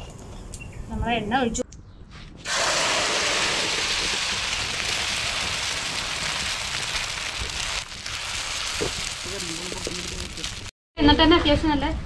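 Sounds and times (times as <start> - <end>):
egg mixture sizzling in hot oil: 2.5 - 10.7.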